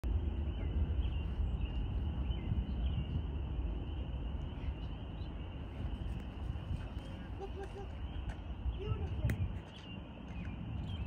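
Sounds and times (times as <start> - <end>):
steady low rumble: 0.0 - 11.0
small birds chirping faintly: 0.1 - 11.0.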